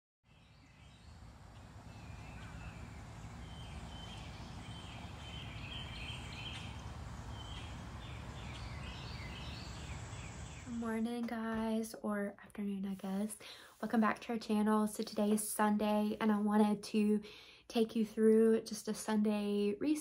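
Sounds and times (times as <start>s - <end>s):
birds chirping: 0.3s - 11.1s
low outdoor rumble: 0.4s - 13.0s.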